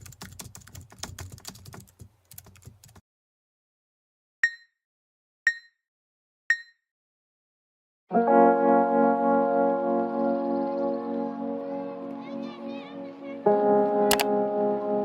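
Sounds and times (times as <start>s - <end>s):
rapid typing on keyboard: 0.0s - 3.0s.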